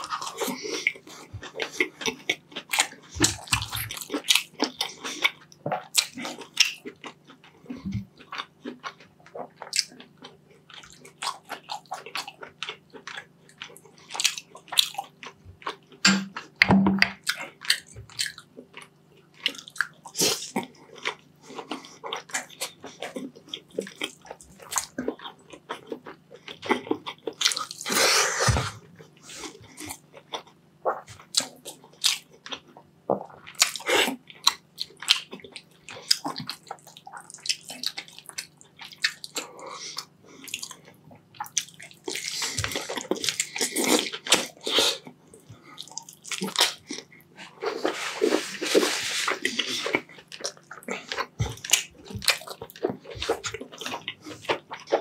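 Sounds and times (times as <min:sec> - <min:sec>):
wet chewing and mouth sounds: 0:00.0 - 0:55.0.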